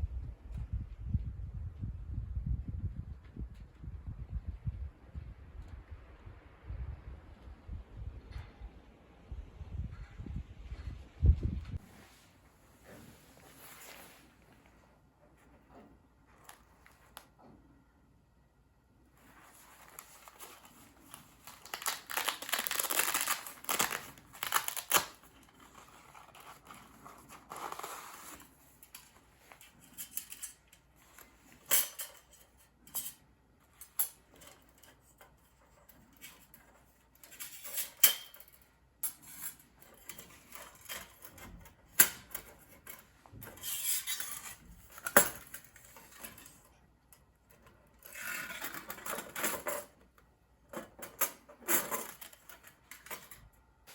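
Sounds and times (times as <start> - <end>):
metal plates rustling: 19.5 - 46.8.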